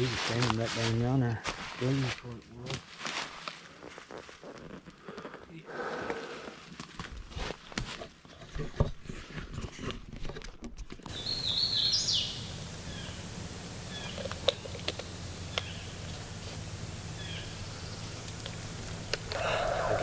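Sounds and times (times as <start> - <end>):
sharp clicks: 11.1 - 20.0
songbird chirping: 11.1 - 20.0.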